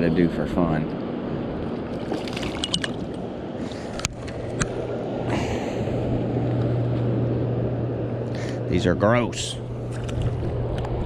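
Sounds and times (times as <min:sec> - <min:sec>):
steady low hum: 0:00.0 - 0:11.0
water noise: 0:01.0 - 0:08.3.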